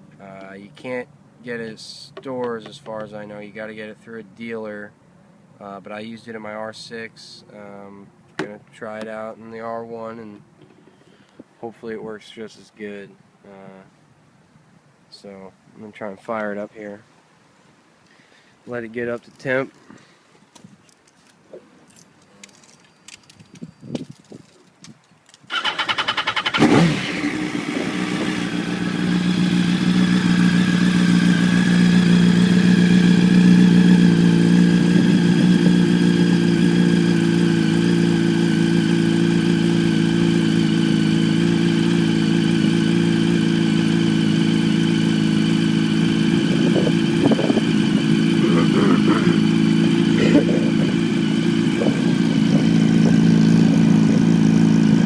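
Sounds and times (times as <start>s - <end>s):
motorcycle starter cranking: 25.5s - 28.5s
motorcycle engine revving and idling: 25.5s - 55.0s.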